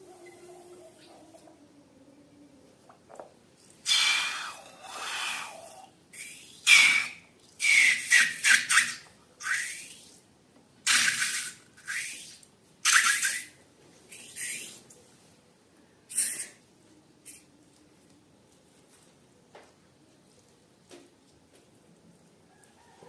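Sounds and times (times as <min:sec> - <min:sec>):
balloons hissing and squealing: 0:03.8 - 0:10.2, 0:10.9 - 0:14.8, 0:16.1 - 0:16.6.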